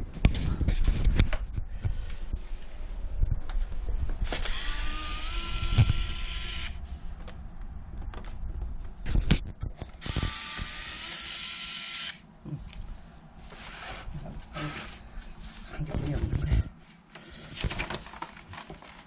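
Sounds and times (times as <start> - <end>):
electric screwdriver whine: 4.2 - 6.8, 10.0 - 12.2.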